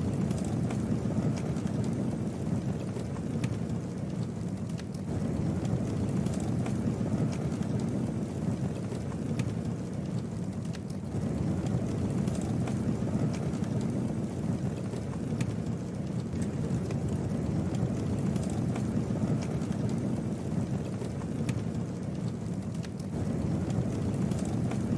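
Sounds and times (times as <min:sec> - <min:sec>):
campfire flames rushing: 0:00.0 - 0:24.9
wood crackling and popping: 0:00.0 - 0:24.9.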